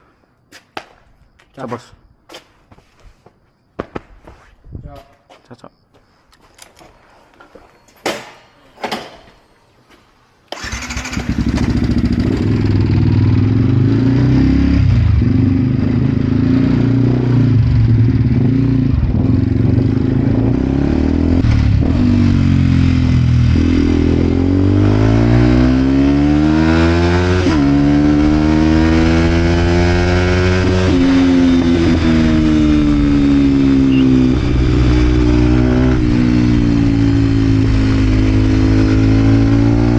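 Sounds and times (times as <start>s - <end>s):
motorcycle engine revving: 10.6s - 39.9s.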